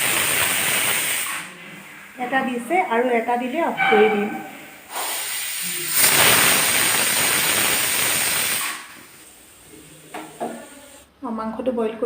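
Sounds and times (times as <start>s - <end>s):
pressure cooker whistling: 4.9s - 8.9s.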